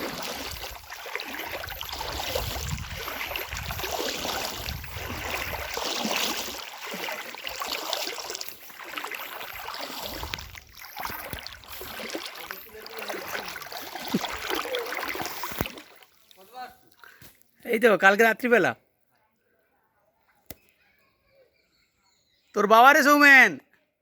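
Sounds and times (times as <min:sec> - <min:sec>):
floodwater rushing and splashing: 0:00.0 - 0:16.2.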